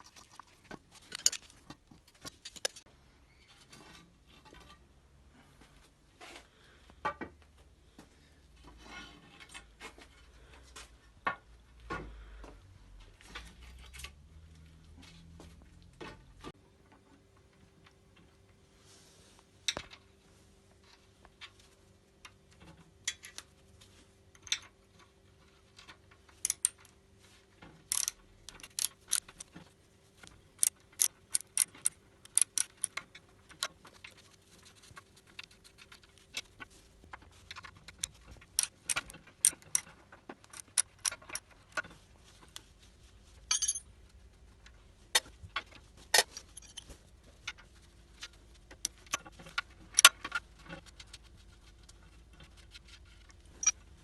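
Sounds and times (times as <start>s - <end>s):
metallic clinks and taps: 43.5s - 43.8s.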